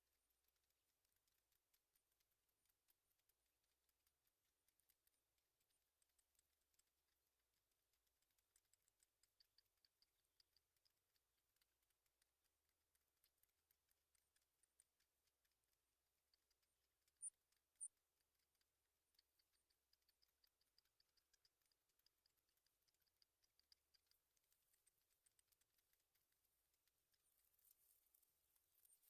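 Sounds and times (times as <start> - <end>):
faint ticking clicks: 0.0 - 29.0
faint high chirps: 16.2 - 18.0.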